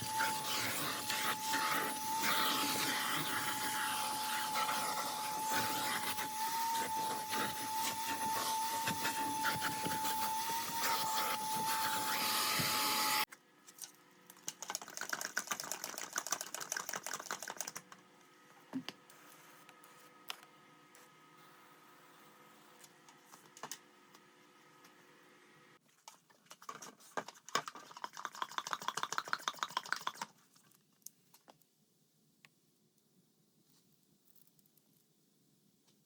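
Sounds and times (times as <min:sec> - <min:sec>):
vacuum cleaner running: 0:00.0 - 0:13.3
faint clicking and handling noises: 0:13.3 - 0:20.5, 0:25.9 - 0:31.7, 0:32.4 - 0:35.2.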